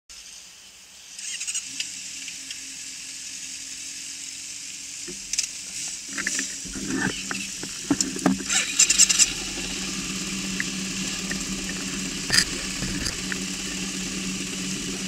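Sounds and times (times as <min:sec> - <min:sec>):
motorcycle engine idling: 0:08.8 - 0:15.0
sharp clicks and knocks: 0:10.6 - 0:13.5.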